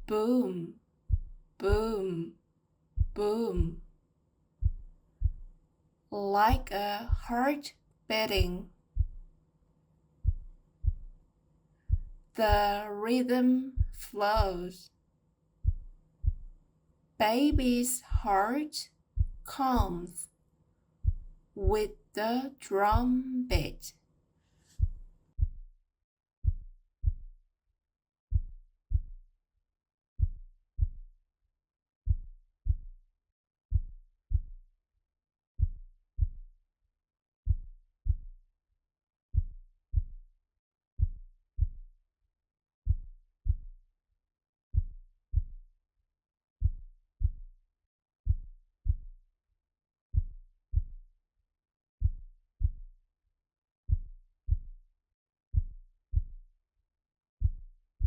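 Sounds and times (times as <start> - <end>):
heartbeat thumps: 0.0 - 2.3, 3.0 - 3.9, 4.6 - 5.5, 6.4 - 7.6, 8.2 - 9.3, 10.2 - 11.2, 11.9 - 12.9, 13.5 - 14.8, 15.6 - 16.6, 17.2 - 18.6, 19.2 - 20.2, 21.0 - 22.0, 22.8 - 23.9, 57.4 - 57.6.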